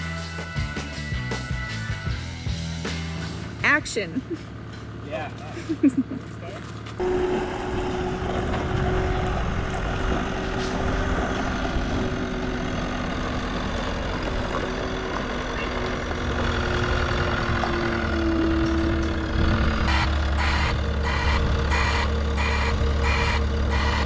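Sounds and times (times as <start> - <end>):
heavy equipment engine running: 2.6 - 24.0
steady whine: 7.0 - 24.0.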